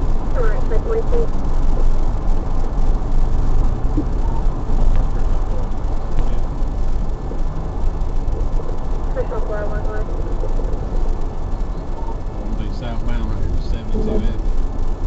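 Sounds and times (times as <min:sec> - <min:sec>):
motor vehicle rumble and hiss: 0:00.0 - 0:15.0.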